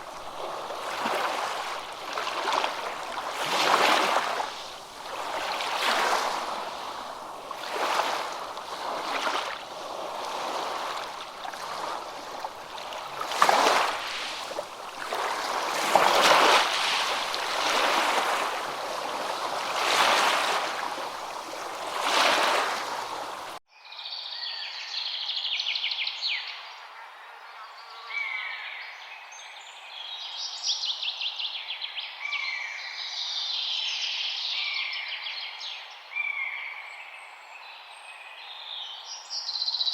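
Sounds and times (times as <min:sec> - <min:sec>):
rushing water: 0:00.0 - 0:23.6.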